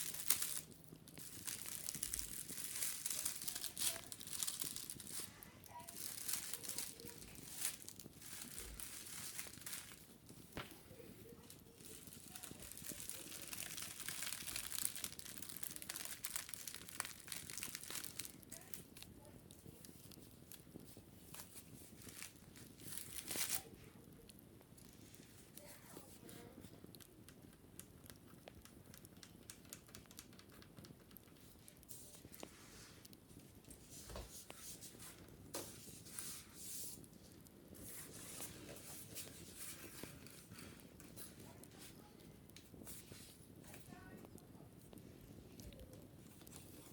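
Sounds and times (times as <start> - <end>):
wicker being scratched and rubbed: 0.0 - 23.8, 31.2 - 37.2, 37.8 - 43.8
small irregular clicks: 0.0 - 36.2, 36.8 - 46.9.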